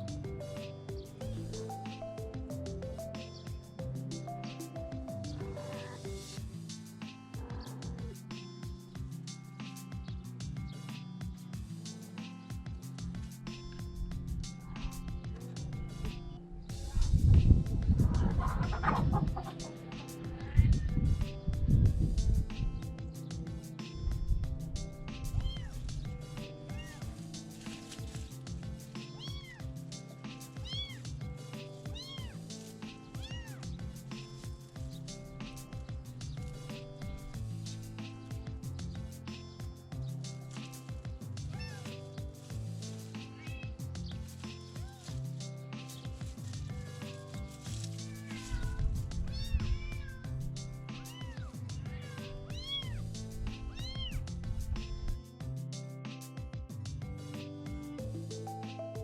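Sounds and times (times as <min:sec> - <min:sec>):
background music with steady beat: 0:00.0 - 0:59.0
kitten meowing: 0:25.4 - 0:25.8, 0:26.7 - 0:27.1, 0:29.1 - 0:29.6, 0:30.6 - 0:31.0, 0:31.9 - 0:32.4, 0:33.2 - 0:33.8, 0:43.3 - 0:43.8, 0:48.0 - 0:50.4, 0:51.0 - 0:53.0, 0:53.7 - 0:54.3.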